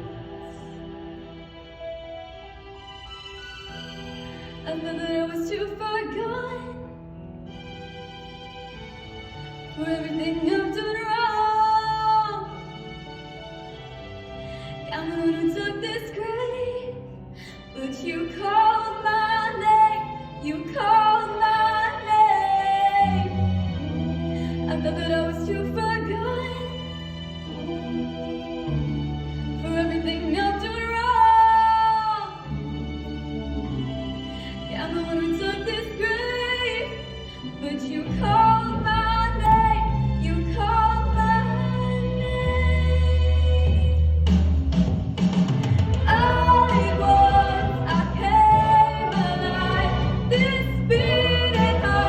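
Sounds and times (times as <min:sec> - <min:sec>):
instrumental accompaniment: 0:00.0 - 0:52.0
woman singing: 0:09.8 - 0:12.5, 0:14.9 - 0:17.0, 0:17.7 - 0:23.5, 0:24.7 - 0:26.8, 0:29.6 - 0:32.5, 0:34.8 - 0:44.0, 0:46.0 - 0:52.0
deep bass: 0:38.2 - 0:52.0
woman singing with vibrato: 0:46.1 - 0:52.0.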